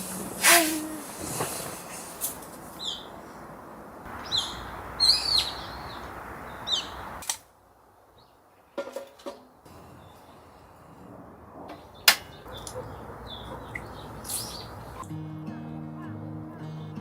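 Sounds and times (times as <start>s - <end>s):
rain hissing: 0.0s - 7.2s, 13.8s - 15.0s
small bird chirping: 2.7s - 3.2s, 4.1s - 7.2s, 11.9s - 15.0s.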